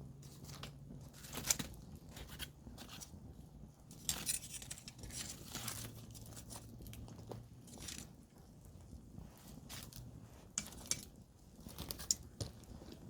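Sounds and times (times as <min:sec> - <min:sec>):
campfire crackling and popping: 0:04.9 - 0:13.0.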